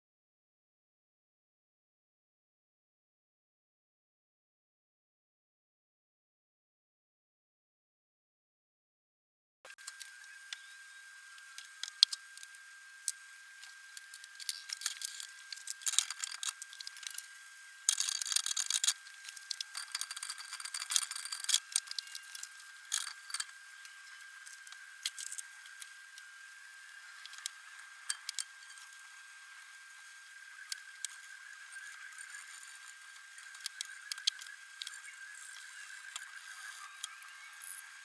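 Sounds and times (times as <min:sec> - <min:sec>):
faint high whine: 0:09.7 - 0:38.0
metal tools clinking and scraping: 0:14.4 - 0:16.6, 0:19.6 - 0:23.5.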